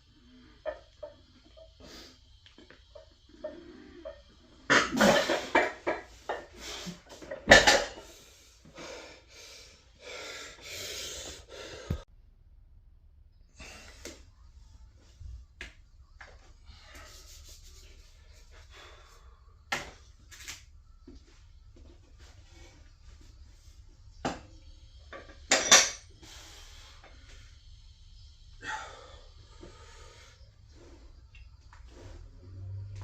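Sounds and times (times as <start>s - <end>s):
person breathing hard: 8.0s - 12.1s, 28.5s - 31.2s.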